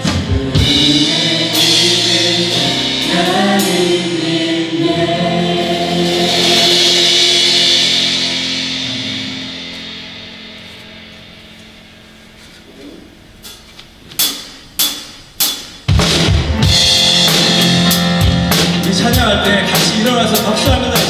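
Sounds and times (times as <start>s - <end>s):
congregation singing: 0.0s - 14.2s
worship band playing: 0.0s - 21.0s.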